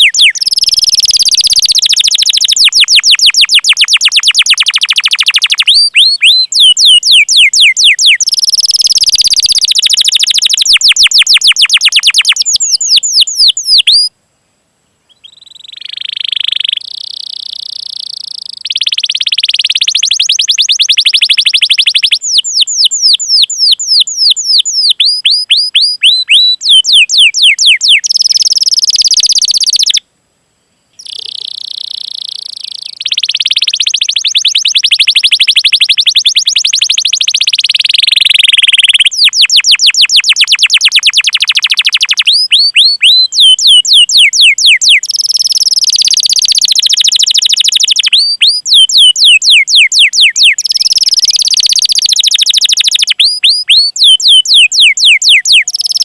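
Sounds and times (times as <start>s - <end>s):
canary singing: 0.0s - 14.1s, 15.1s - 30.0s, 31.0s - 56.0s.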